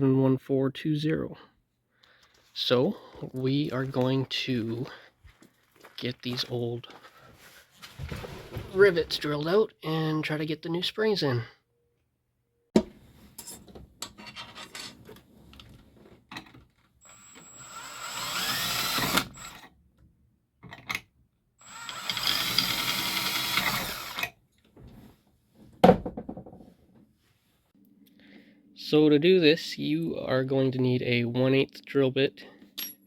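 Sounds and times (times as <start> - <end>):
electric drill drilling rivets: 17.0 - 19.7, 21.6 - 24.3.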